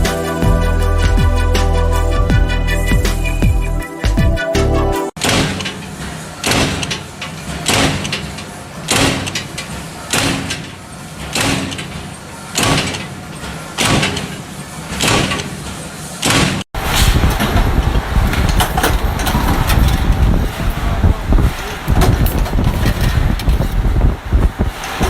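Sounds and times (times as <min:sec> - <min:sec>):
machine working in repeating cycle: 0:05.2 - 0:25.0.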